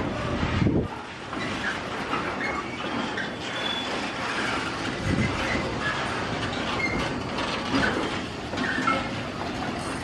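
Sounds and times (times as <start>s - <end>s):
train wheels clattering over rail joints: 0.0s - 10.0s
high wheel squeals: 1.3s - 10.0s.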